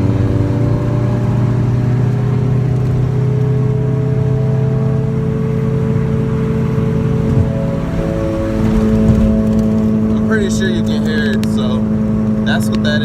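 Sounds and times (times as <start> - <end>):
road and engine noise: 0.0 - 13.0
wheel bearing hum: 4.4 - 13.0.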